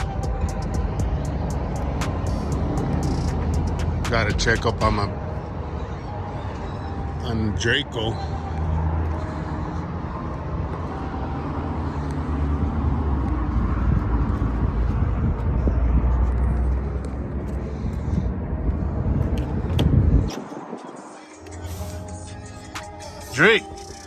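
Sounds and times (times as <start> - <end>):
vehicle engine running: 0.0 - 5.4
outdoor noise: 0.0 - 24.0.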